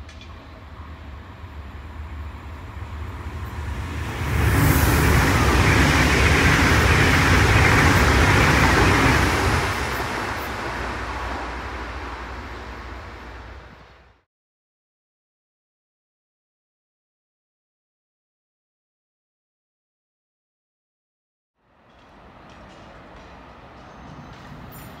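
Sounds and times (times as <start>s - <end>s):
wheels roaring on rail: 0.0s - 14.2s
high-speed train passing: 0.0s - 14.3s, 21.6s - 25.0s
rushing air: 2.6s - 14.1s.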